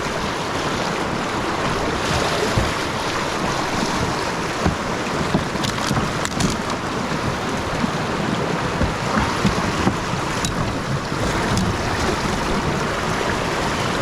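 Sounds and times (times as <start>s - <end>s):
river whitewater rushing: 0.0s - 14.0s
sharp knocks: 2.5s - 3.0s, 3.9s - 8.1s, 8.7s - 12.8s.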